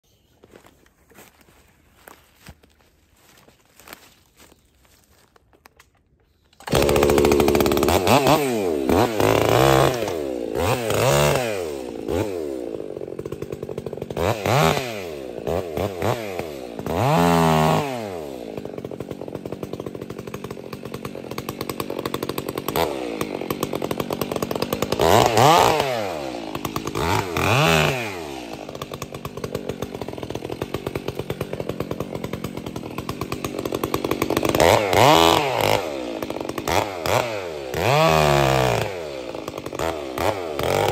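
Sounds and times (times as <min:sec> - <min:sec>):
chainsaw revving: 0:06.6 - 0:40.9.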